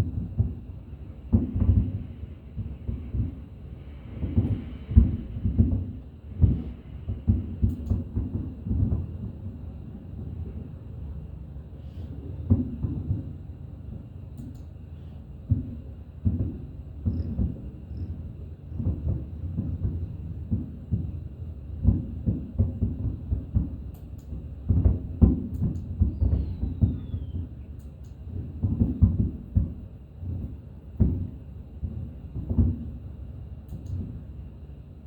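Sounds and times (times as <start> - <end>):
fireworks bursting: 0.0 - 10.7, 15.5 - 21.2, 21.8 - 27.6.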